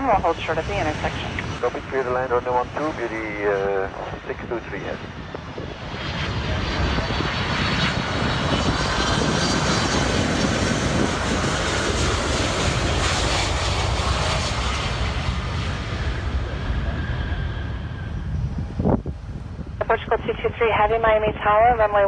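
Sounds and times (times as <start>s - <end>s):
high jet engine whine: 0.0s - 22.0s
jet airliner rumble and hiss: 0.0s - 22.0s.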